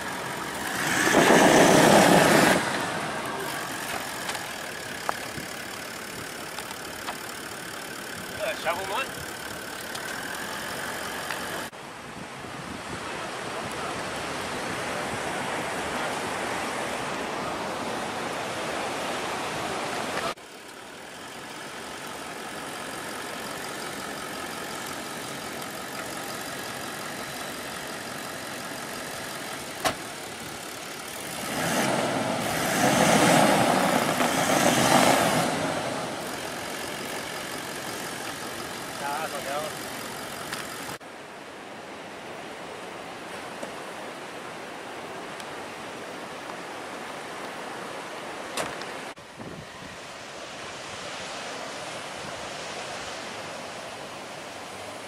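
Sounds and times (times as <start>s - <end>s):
engine running and revving: 0.0s - 11.7s, 21.3s - 41.0s.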